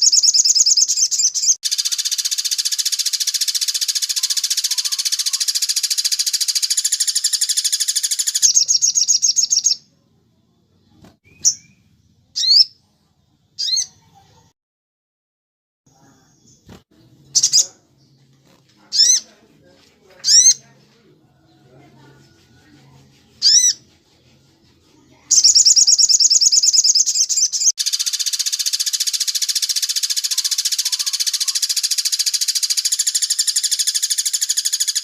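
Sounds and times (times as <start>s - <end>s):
bird trilling: 0.0s - 9.8s, 12.4s - 12.8s, 13.6s - 13.9s, 17.4s - 17.8s, 18.9s - 19.3s, 20.2s - 20.6s, 23.4s - 23.8s, 25.3s - 35.0s.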